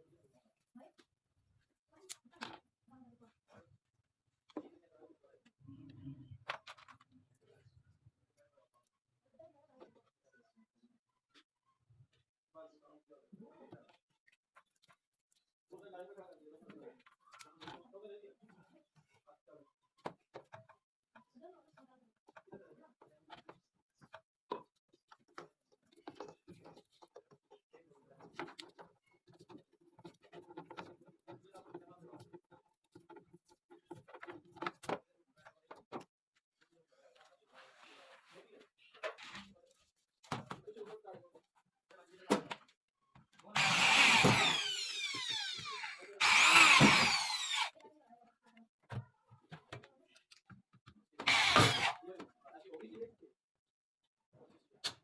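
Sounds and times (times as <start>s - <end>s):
power drill motor whine: 43.6s - 47.7s, 51.2s - 52.0s.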